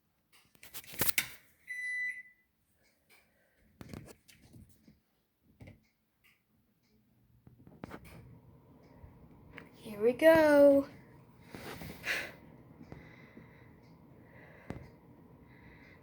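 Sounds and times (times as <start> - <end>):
appliance electronic beep: 1.7 - 2.5.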